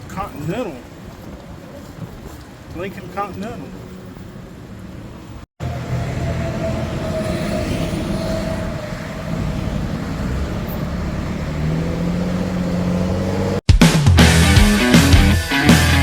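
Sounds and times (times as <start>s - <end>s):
road noise: 0.0s - 13.7s
vehicle engine hum: 3.6s - 13.6s.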